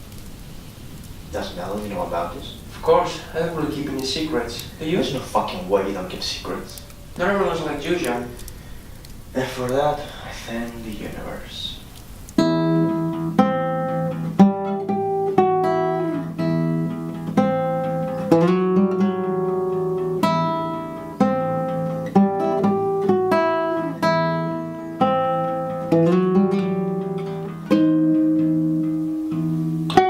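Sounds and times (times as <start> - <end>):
guitar playing slow melody: 11.9 - 30.0.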